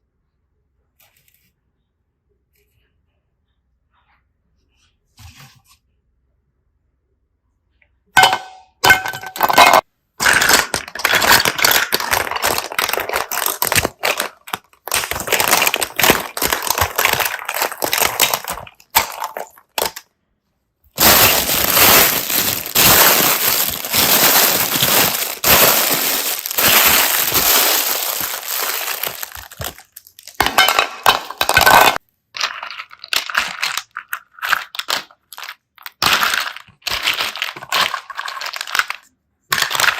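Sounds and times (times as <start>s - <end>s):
slime crunching and crackling: 10.2s - 20.0s, 21.0s - 30.5s, 31.4s - 39.9s.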